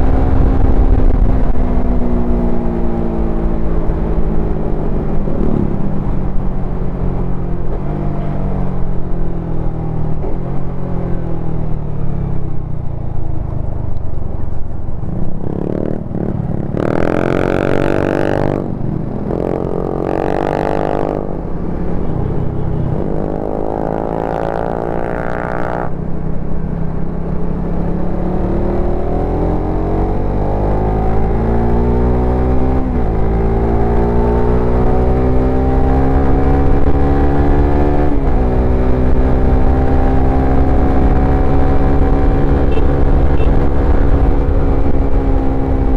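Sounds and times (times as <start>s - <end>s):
motorcycle engine revving: 15.1s - 26.0s, 27.4s - 45.9s.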